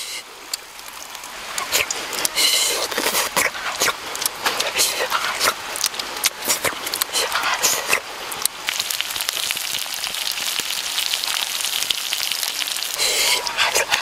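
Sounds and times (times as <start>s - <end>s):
food sizzling in fat: 0.0s - 14.0s.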